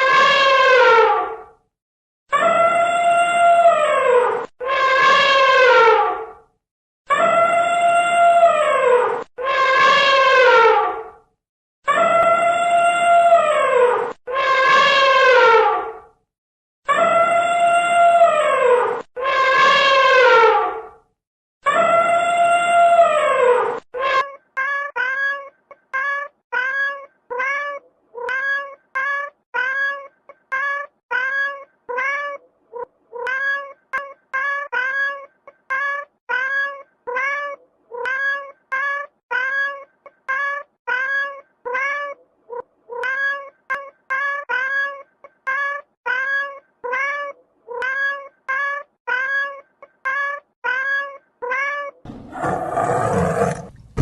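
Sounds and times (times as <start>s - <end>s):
cat meowing: 23.6s - 54.0s.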